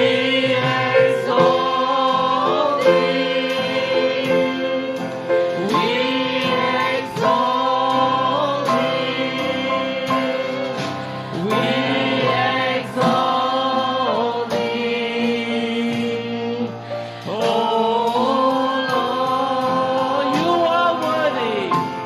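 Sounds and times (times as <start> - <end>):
congregation singing: 0.0 - 22.0
piano accompaniment: 0.0 - 22.0.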